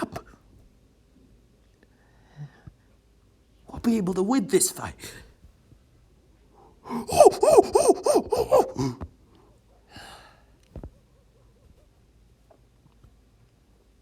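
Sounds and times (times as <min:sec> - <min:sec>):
person gasping rhythmically: 0:06.6 - 0:10.5
breathy exhale: 0:09.9 - 0:10.6.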